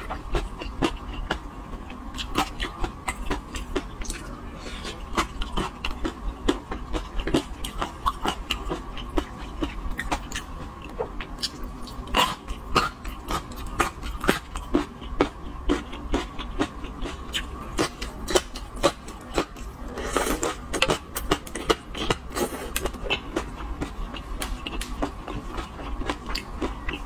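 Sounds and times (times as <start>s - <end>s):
wet chewing and lip smacks: 23.1s - 27.0s.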